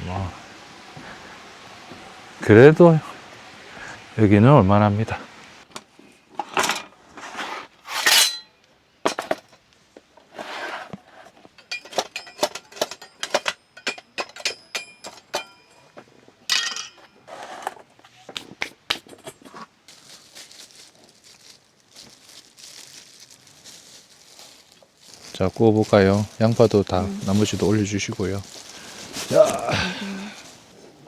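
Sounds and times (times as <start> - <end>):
soft steady hiss: 0.0 - 31.0
rustling and scraping: 5.7 - 31.0
dishes and utensils clattering: 6.4 - 6.9, 7.9 - 8.5, 9.1 - 9.6, 11.6 - 17.2.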